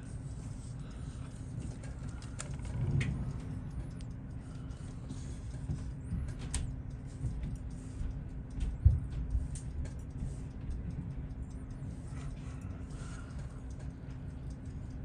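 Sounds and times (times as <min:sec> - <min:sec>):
steady low hum: 0:00.0 - 0:15.0
small tool clicks and taps: 0:05.4 - 0:12.4.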